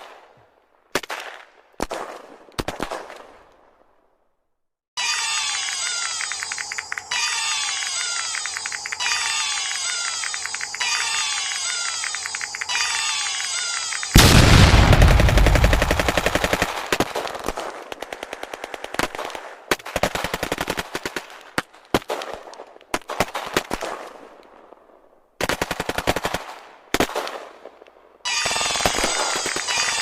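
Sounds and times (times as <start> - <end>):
rapid crackling bangs: 7.7 - 22.4, 28.4 - 30.0.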